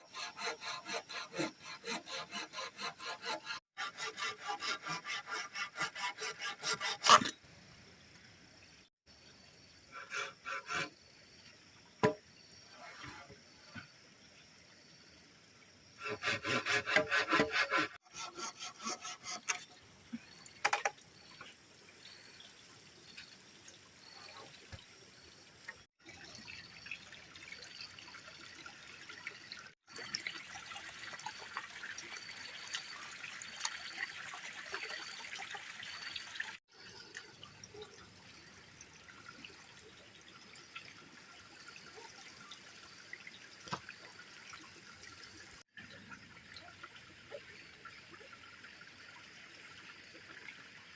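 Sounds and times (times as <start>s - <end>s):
water trickling: 19.4s - 50.9s.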